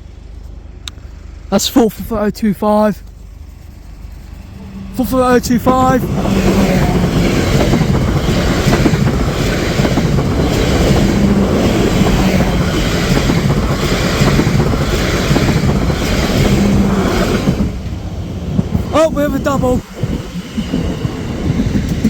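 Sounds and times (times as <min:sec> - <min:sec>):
train wheels rumbling on rails: 0:00.0 - 0:22.0
train wheels clacking: 0:03.0 - 0:22.0
wind buffeting microphone: 0:04.6 - 0:22.0.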